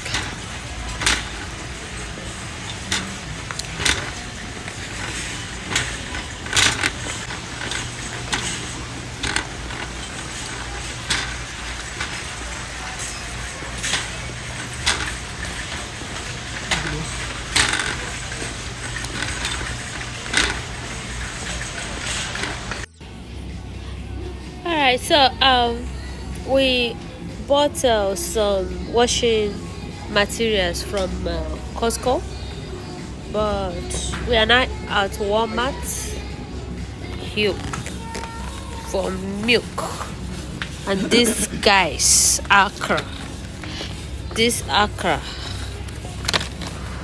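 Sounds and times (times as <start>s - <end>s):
clicks and rattles: 0.0s - 22.9s, 36.9s - 47.0s
road and engine rumble: 0.0s - 47.0s.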